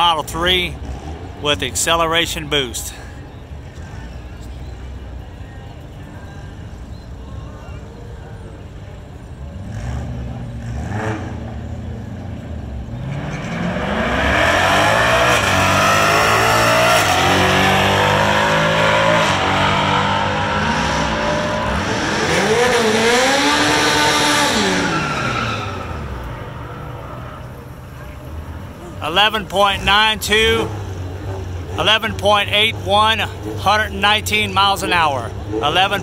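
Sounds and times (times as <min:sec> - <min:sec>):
car engine at full throttle: 0:09.0 - 0:36.0.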